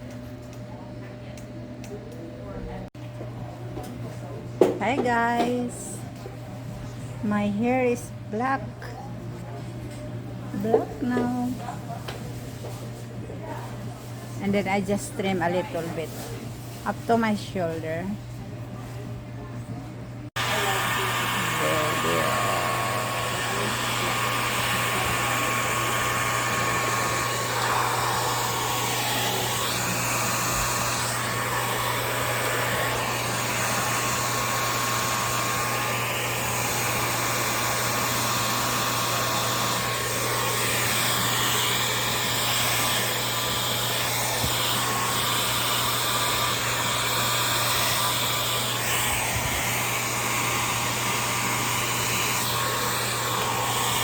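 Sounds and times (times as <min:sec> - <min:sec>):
hair dryer running: 0:10.6 - 0:11.6, 0:20.3 - 0:54.0.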